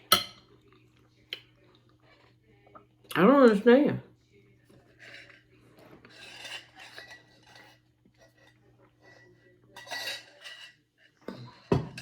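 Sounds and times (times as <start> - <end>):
cutlery scraping and clinking on dish: 0.0 - 0.6, 4.7 - 12.0.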